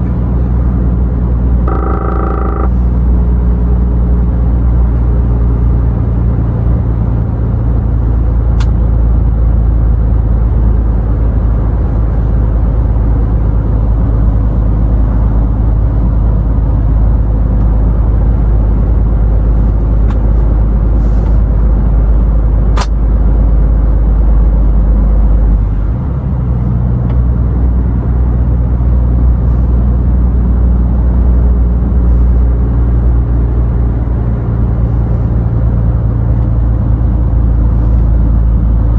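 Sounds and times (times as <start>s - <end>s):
road and tyre noise: 0.0s - 38.9s
truck engine hum: 0.0s - 38.9s
sharp click: 22.7s - 23.0s.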